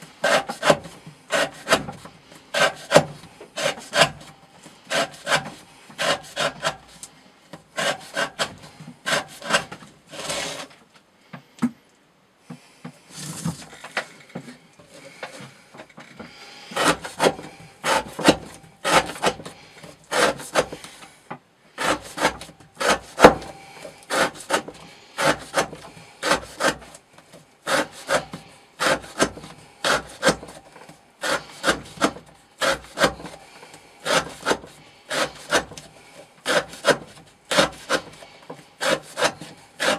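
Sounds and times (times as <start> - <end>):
knife cutting through rope: 0.2 - 4.3, 4.9 - 7.0, 7.8 - 10.7, 16.7 - 21.0, 21.8 - 27.0, 27.6 - 39.9.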